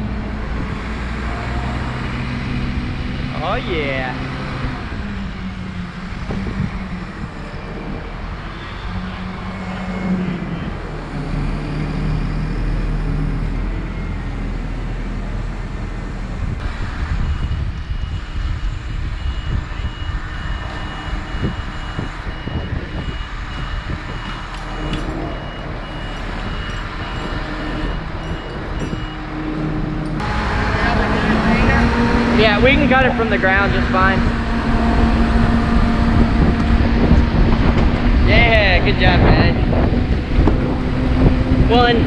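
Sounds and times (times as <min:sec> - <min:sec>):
heavy engine running: 0:00.0 - 0:42.0
back-up alarm beeping: 0:16.6 - 0:39.8.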